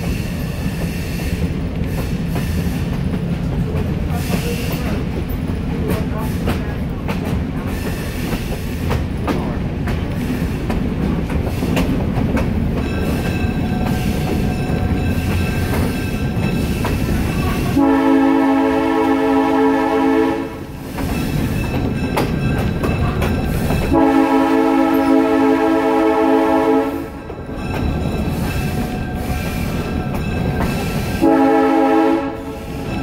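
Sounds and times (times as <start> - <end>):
wheel clicks on rail joints: 0.0 - 17.8, 20.8 - 24.0
train rumble: 0.0 - 33.0
locomotive horn blast: 17.5 - 20.7, 23.9 - 27.2, 31.2 - 32.6.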